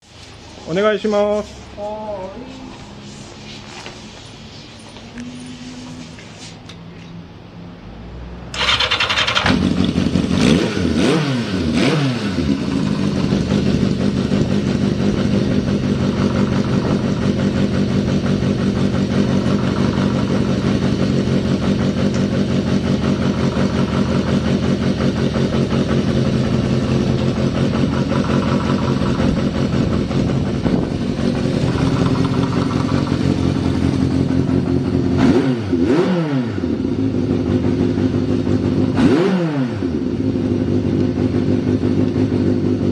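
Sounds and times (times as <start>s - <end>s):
motorcycle throttle blips: 11.1s - 35.4s
motorcycle engine idling: 12.4s - 35.2s.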